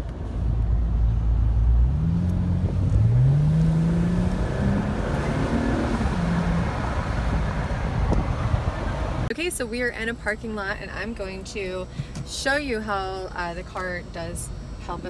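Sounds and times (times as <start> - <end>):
road noise: 0.0 - 15.0
car engine accelerating: 0.4 - 9.3
wind noise: 3.9 - 9.3.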